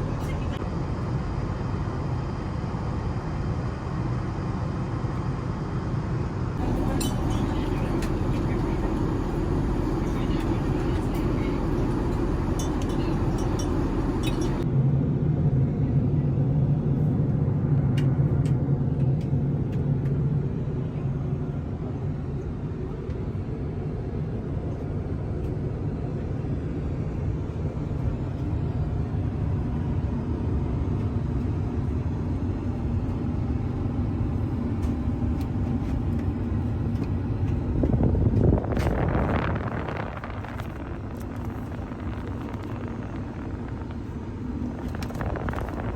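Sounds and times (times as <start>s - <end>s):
jet cabin rumble: 0.0s - 45.9s.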